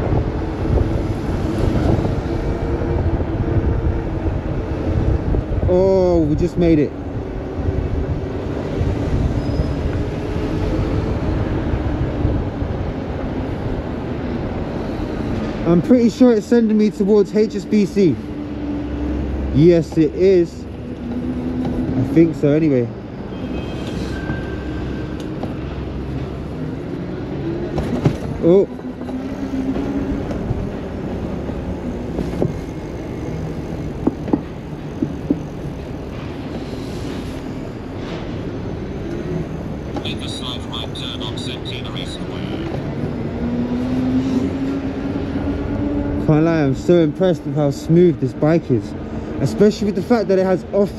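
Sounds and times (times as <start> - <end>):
wind buffeting microphone: 0.0 - 6.4
passing vehicles: 0.0 - 50.9
tyre road noise rumble: 0.0 - 50.9.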